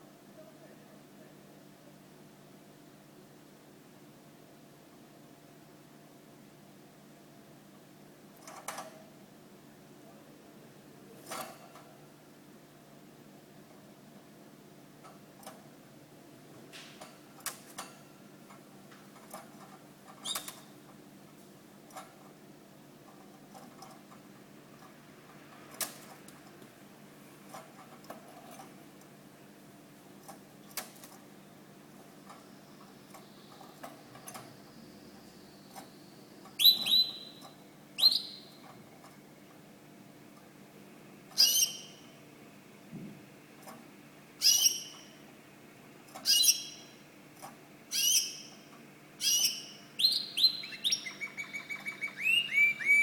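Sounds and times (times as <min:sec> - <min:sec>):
faint steady hum: 0:00.0 - 0:53.0
canary calls: 0:36.6 - 0:37.4, 0:38.0 - 0:38.6, 0:41.4 - 0:42.1, 0:44.4 - 0:45.2, 0:46.2 - 0:47.0, 0:47.9 - 0:48.6, 0:49.2 - 0:53.0.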